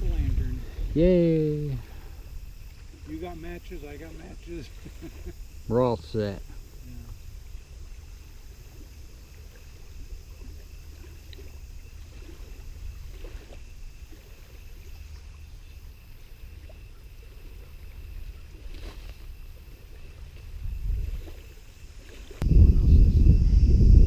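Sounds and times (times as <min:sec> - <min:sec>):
wind buffeting microphone: 0:00.0 - 0:05.8, 0:17.2 - 0:24.0.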